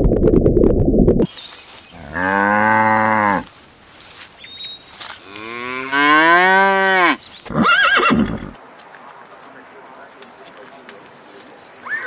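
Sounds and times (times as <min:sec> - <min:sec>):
cow mooing: 0:02.0 - 0:03.5, 0:05.2 - 0:07.2.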